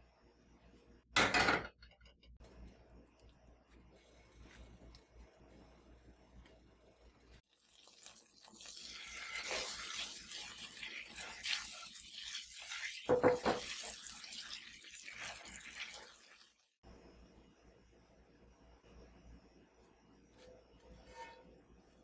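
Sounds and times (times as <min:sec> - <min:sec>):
water running from a tap: 0:07.5 - 0:16.7.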